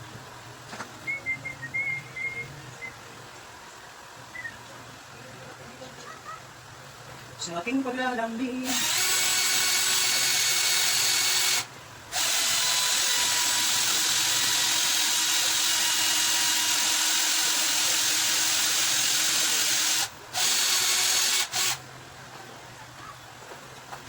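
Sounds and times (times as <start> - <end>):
power drill running: 8.6 - 21.8.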